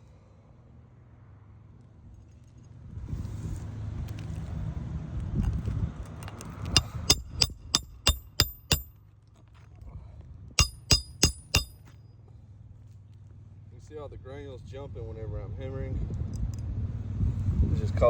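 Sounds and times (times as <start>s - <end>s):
hammer striking roofing nails: 6.8s - 8.9s, 10.6s - 11.8s.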